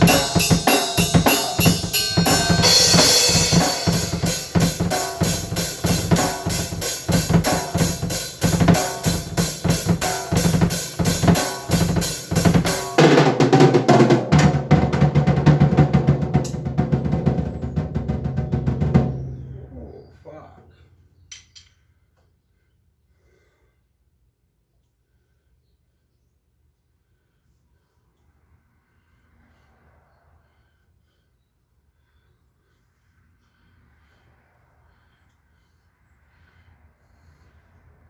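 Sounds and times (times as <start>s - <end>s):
drum kit fast beat: 0.0s - 19.3s.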